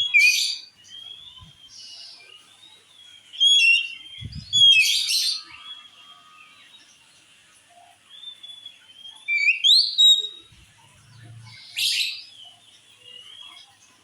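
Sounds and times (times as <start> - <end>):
bird singing whistled notes: 0.0 - 2.2, 3.0 - 6.0, 8.2 - 10.6.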